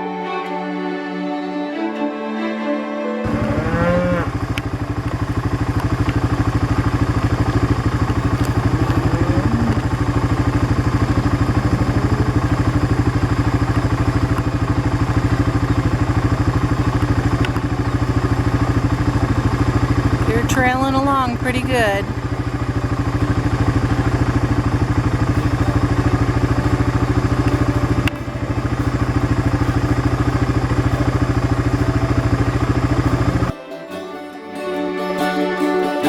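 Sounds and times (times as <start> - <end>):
background music: 0.0 - 4.3, 25.3 - 36.0
small engine running: 0.0 - 33.7.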